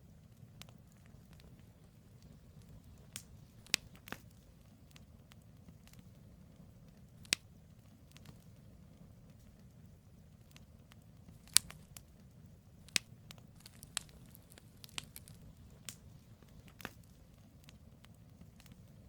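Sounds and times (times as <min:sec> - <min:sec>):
campfire crackling: 0:00.0 - 0:19.0
low rumble of flames: 0:00.0 - 0:19.0.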